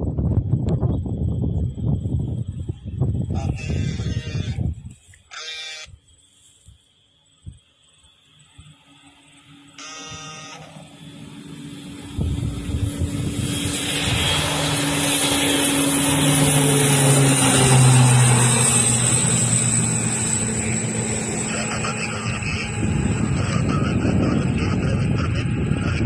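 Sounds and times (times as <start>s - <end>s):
turboprop aircraft flying past: 0.0s - 4.7s, 8.2s - 26.0s
brief beep-like tone: 9.8s - 10.8s.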